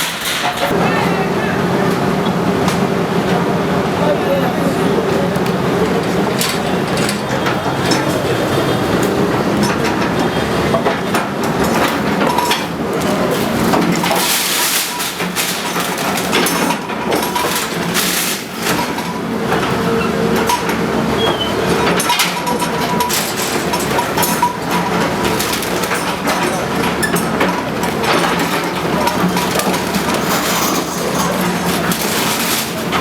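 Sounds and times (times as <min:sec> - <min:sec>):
demolition machinery engine hum: 0:00.0 - 0:33.0
debris crunching and clattering: 0:09.6 - 0:19.8, 0:21.7 - 0:33.0.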